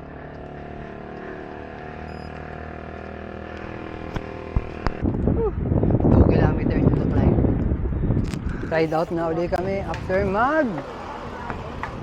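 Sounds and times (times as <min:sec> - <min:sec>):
vehicle engine running: 0:00.0 - 0:06.1, 0:08.8 - 0:12.0.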